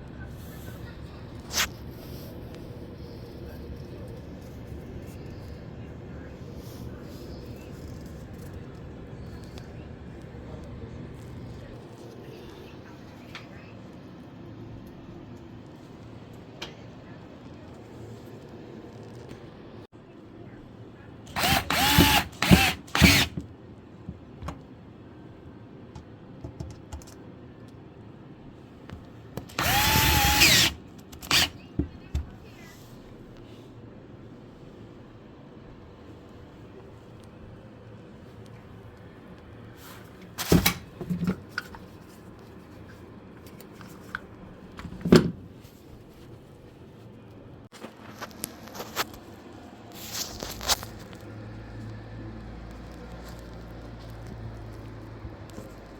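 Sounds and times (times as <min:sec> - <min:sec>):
cordless drill spinning: 0:21.3 - 0:23.4, 0:29.4 - 0:31.6.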